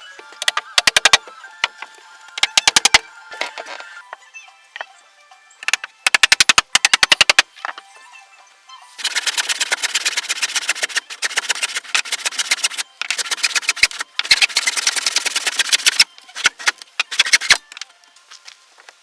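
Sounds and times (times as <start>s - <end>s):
rapid sharp knocks: 0.4s - 1.2s, 2.4s - 3.0s, 5.6s - 7.4s, 9.0s - 17.6s.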